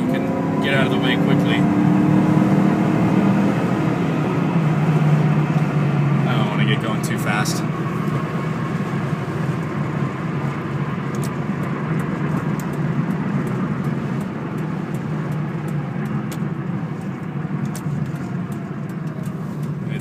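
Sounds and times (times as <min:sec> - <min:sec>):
car engine drone: 0:00.0 - 0:20.0
wind and road noise: 0:00.0 - 0:20.0.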